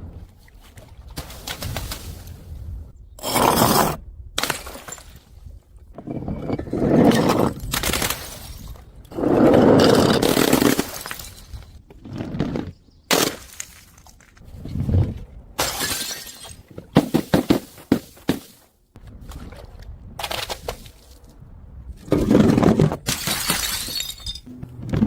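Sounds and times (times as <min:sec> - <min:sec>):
glass bottles breaking: 0:10.1 - 0:11.6, 0:15.6 - 0:16.6, 0:23.1 - 0:24.5.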